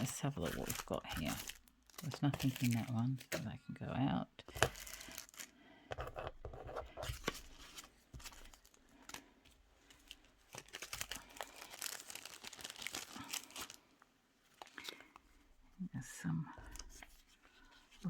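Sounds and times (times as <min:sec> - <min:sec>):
paper rustling and crinkling: 0:00.0 - 0:03.5, 0:04.5 - 0:15.2.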